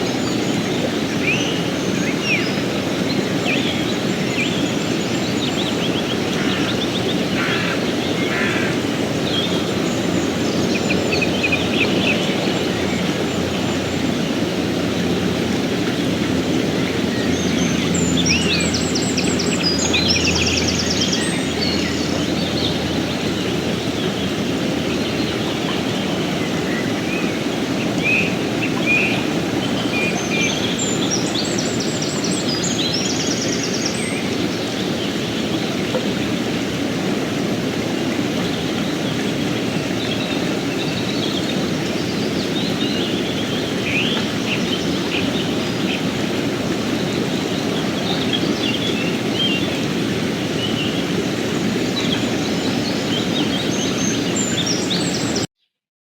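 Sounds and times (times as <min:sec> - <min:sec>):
songbirds chirping and trilling: 0:00.0 - 0:35.8
stream rushing: 0:00.0 - 0:55.5.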